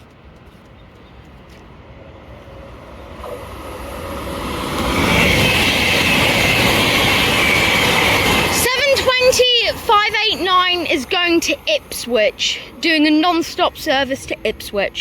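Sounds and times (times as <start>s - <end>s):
train high whine: 0.0s - 15.0s
train passing at speed: 0.0s - 15.0s.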